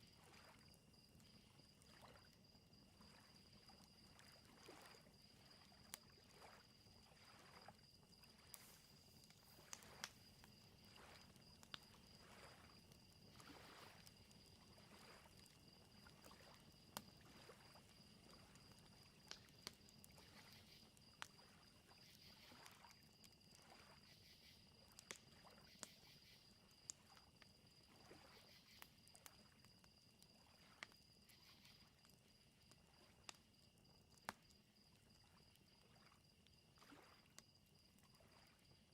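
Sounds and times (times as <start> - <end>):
crickets chirping: 0.0 - 38.9
small waves lapping on shore: 4.0 - 16.6, 17.2 - 18.6, 36.8 - 37.3
fire snapping and popping: 8.3 - 21.6, 32.7 - 34.7.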